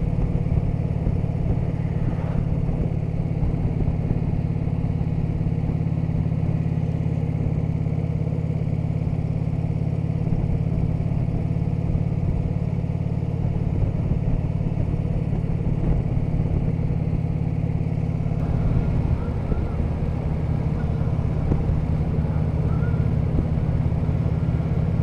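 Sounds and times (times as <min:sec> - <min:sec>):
motorcycle engine cruising: 0:00.0 - 0:25.0
road and wind noise: 0:00.0 - 0:25.0.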